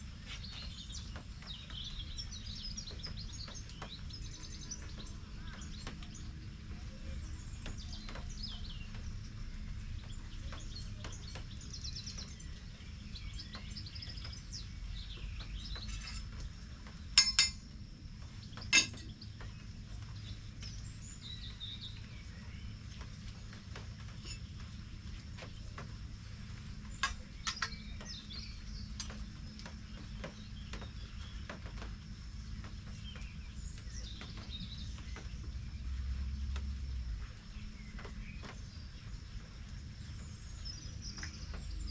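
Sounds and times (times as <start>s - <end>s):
birds chirping: 0.0s - 41.9s
sharp clinks: 17.2s - 17.6s.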